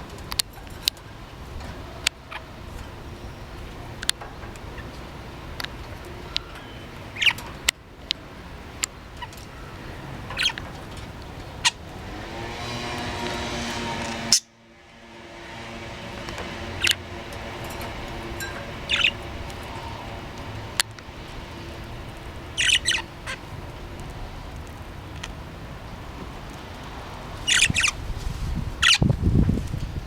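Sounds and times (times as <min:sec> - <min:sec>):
steady background hum: 0:00.0 - 0:29.4
budgerigar chirping and squawking: 0:18.9 - 0:19.2, 0:22.6 - 0:23.4, 0:27.5 - 0:28.0.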